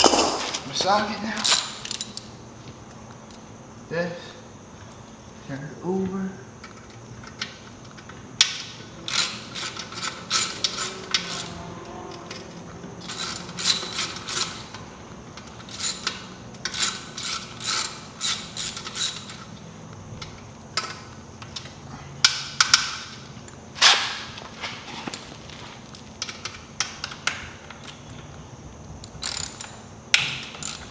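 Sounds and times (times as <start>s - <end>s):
socket ratchet clicking: 6.6s - 14.8s, 15.4s - 19.5s, 29.0s - 30.9s.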